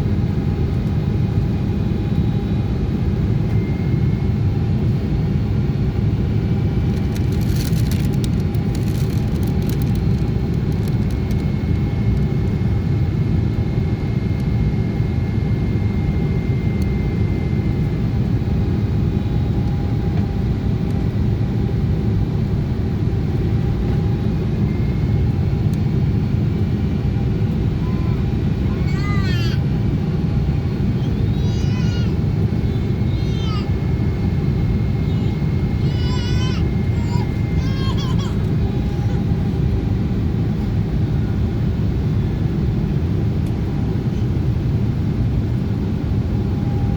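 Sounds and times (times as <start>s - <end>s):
aircraft cabin rumble: 0.0s - 46.9s
faint steady whines: 0.0s - 46.9s.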